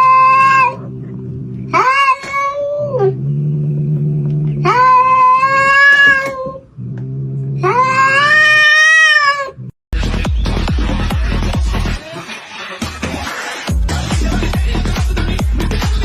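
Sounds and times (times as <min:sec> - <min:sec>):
cat yowling: 0:00.0 - 0:00.9, 0:01.7 - 0:03.2, 0:04.6 - 0:06.6, 0:07.6 - 0:09.6
cat growling: 0:00.0 - 0:09.7
music: 0:10.0 - 0:16.0.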